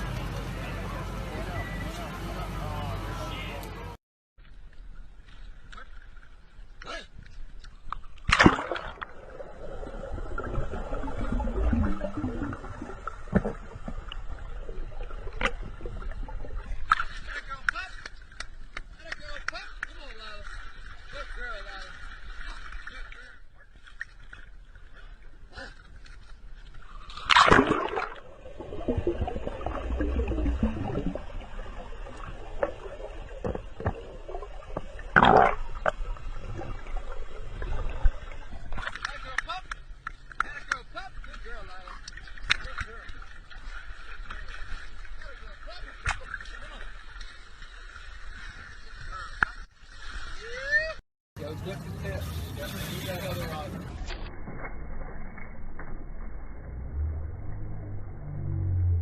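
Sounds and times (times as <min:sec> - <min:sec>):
water splashing and sloshing: 0:04.4 - 0:59.0
loud splashes: 0:08.2 - 0:13.8, 0:27.1 - 0:39.6.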